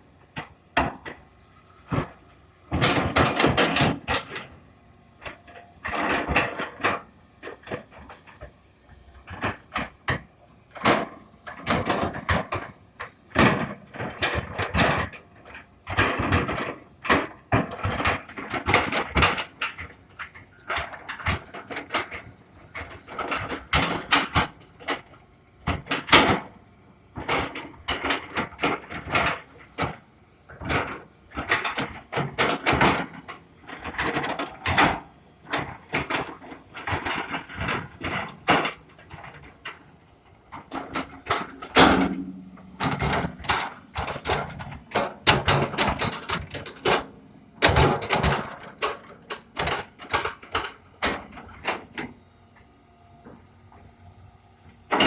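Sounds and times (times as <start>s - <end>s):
clattering and knocking: 27.2s - 52.2s
scrapes: 40.5s - 50.5s.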